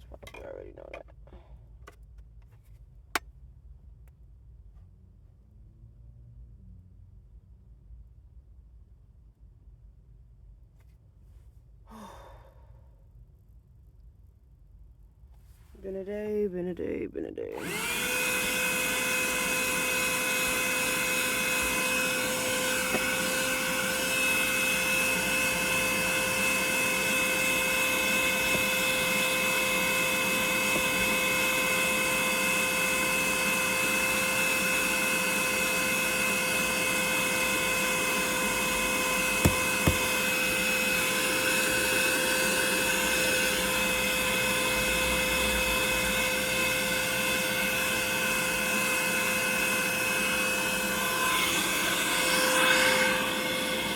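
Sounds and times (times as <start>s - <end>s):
vacuum cleaner whining: 17.5s - 53.9s.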